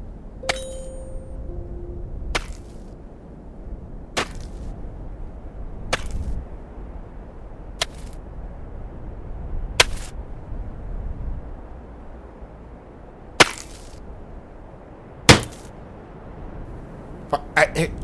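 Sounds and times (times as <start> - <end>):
pickaxe striking ground: 0.4 - 1.0, 2.4 - 2.8, 4.2 - 4.6, 13.4 - 14.0, 15.3 - 15.7.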